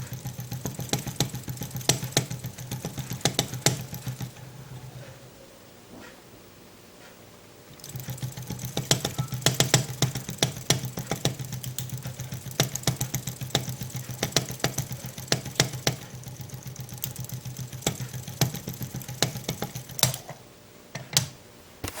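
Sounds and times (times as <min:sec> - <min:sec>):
stirling engine clicking: 0:00.0 - 0:04.4, 0:07.7 - 0:20.3.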